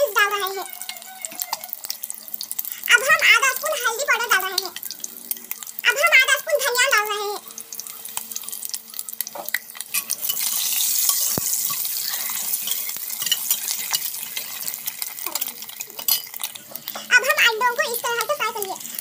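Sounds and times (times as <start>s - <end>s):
eggs sizzling in hot oil: 0.0s - 19.0s
steel spoon scraping pot: 9.9s - 17.1s.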